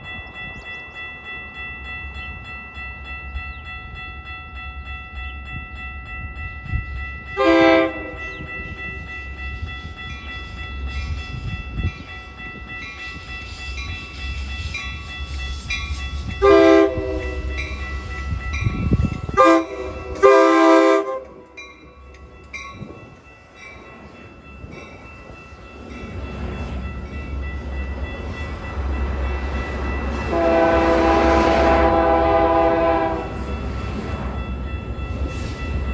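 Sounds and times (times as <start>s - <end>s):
train rumbling: 0.0s - 35.9s
train horn blasts: 7.4s - 8.5s, 16.4s - 17.8s, 19.3s - 21.6s, 30.2s - 33.4s.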